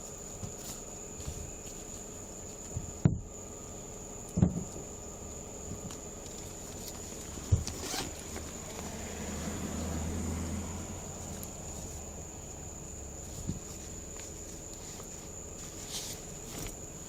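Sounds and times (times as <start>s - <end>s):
dull thumps: 4.3s - 4.9s, 7.3s - 8.5s
light rustling: 13.2s - 17.0s.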